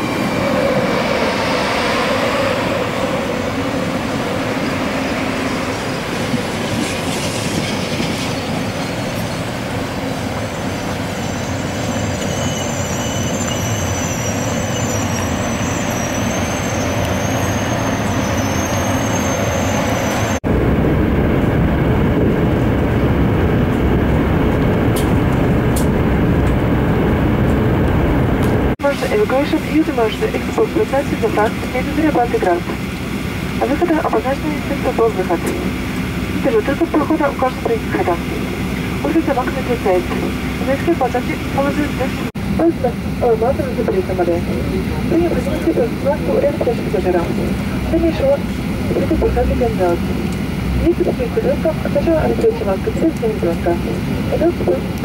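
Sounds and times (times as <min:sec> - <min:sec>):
train rumble inside carriage: 0:00.0 - 0:55.0
train steady noise at platform: 0:00.0 - 0:55.0
high-pitched whines: 0:10.3 - 0:20.4.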